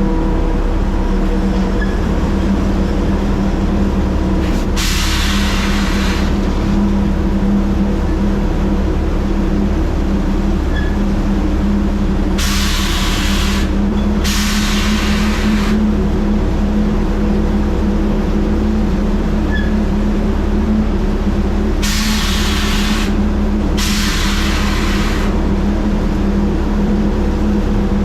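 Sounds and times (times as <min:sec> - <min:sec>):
truck diesel engine running: 0:00.0 - 0:28.0
air hissing bursts: 0:04.4 - 0:06.4, 0:12.4 - 0:15.8, 0:21.8 - 0:25.4.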